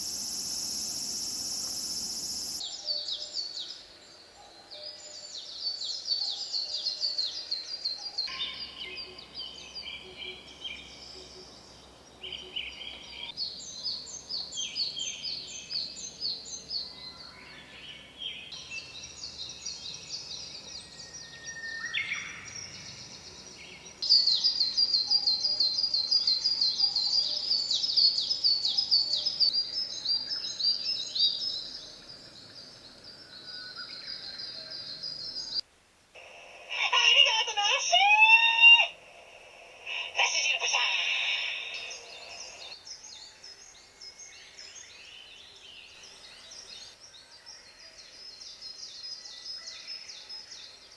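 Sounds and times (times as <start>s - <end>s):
high chirping calls: 0.0s - 3.5s, 18.5s - 35.6s, 36.2s - 42.8s.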